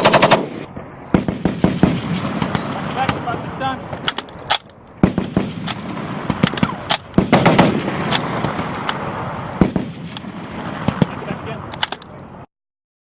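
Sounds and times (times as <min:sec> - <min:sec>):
machine-gun shots with echo: 0:00.0 - 0:03.4, 0:05.0 - 0:11.2.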